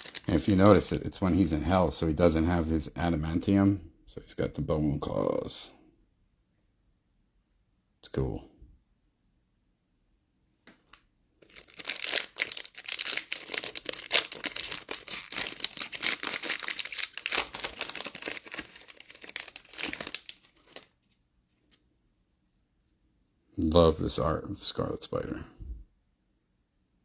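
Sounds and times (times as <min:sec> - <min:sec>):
foil pack tearing and crinkling: 0:00.0 - 0:01.0, 0:11.4 - 0:20.9.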